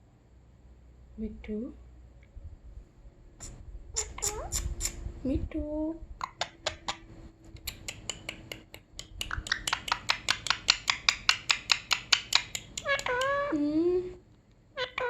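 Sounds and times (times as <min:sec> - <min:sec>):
high-pitched voice calling: 0:04.0 - 0:04.7
rapid sharp taps: 0:07.6 - 0:13.0.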